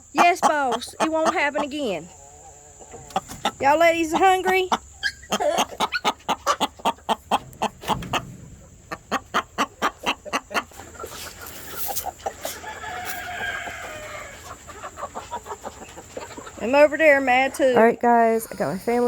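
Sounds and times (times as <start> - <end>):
chickens clucking: 0.0 - 19.0
rooster crowing: 12.4 - 14.6.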